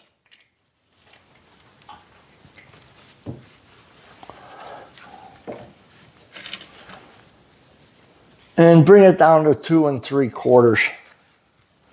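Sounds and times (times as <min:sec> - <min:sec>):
faint rustling: 0:00.5 - 0:08.6.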